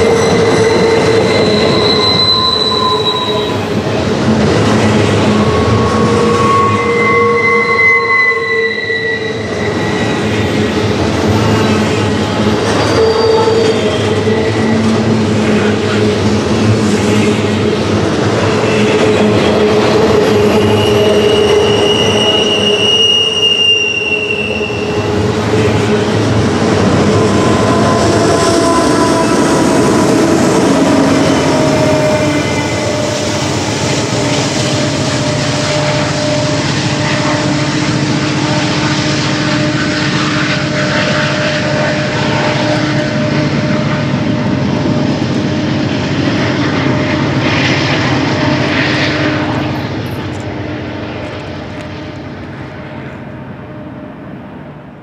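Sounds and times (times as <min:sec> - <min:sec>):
high wheel squeal: 0:00.0 - 0:50.2
freight train cars rolling: 0:00.0 - 0:55.0
train rumble in tunnel: 0:00.0 - 0:55.0.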